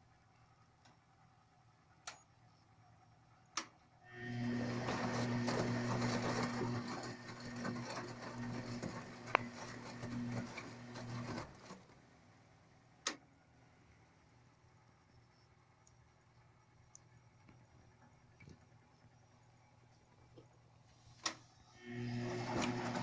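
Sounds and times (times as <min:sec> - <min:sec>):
sharp click: 0:02.0 - 0:02.3
washing machine humming: 0:04.0 - 0:23.0.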